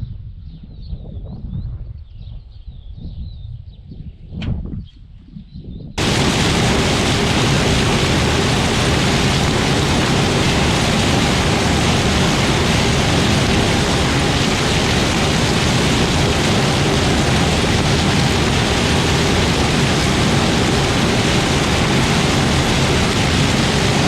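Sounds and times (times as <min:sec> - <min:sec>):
loud rushing noise: 0:06.0 - 0:24.0.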